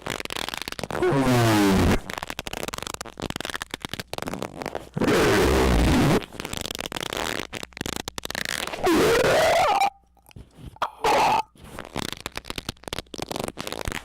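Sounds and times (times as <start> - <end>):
rapid crackling and clicking: 0.0 - 1.2, 1.9 - 14.0
distorted bending squeak: 8.4 - 10.0.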